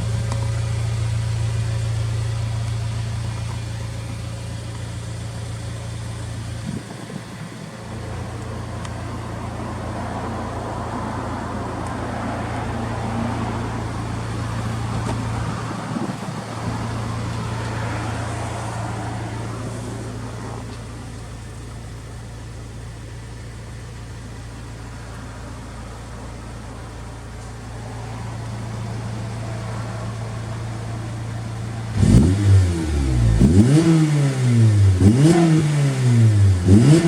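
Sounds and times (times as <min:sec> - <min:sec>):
car exhaust note: 0:26.0 - 0:37.0.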